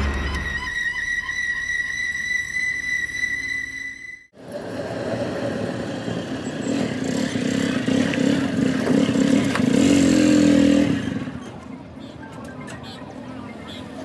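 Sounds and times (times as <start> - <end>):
engine running: 4.4 - 11.6.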